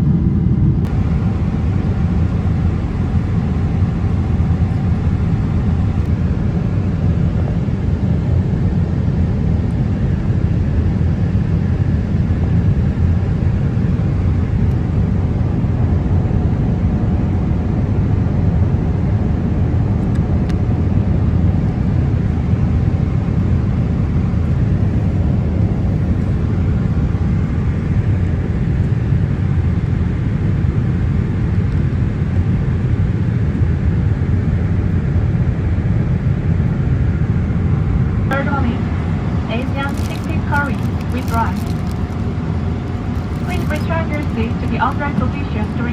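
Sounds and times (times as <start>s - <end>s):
airplane cabin engine rush: 0.0s - 45.9s.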